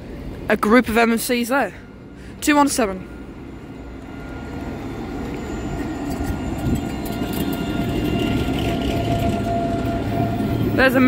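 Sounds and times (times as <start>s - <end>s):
electric tram whine and rumble: 0.0s - 11.0s.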